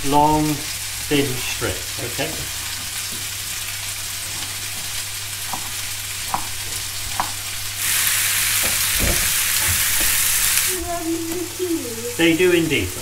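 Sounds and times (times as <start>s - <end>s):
vegetables sizzling in a pan: 0.0s - 13.0s
wooden spoon knocking in pan: 2.7s - 3.4s, 4.2s - 7.6s, 8.6s - 10.3s
knife tapping chopping board: 4.4s - 7.4s.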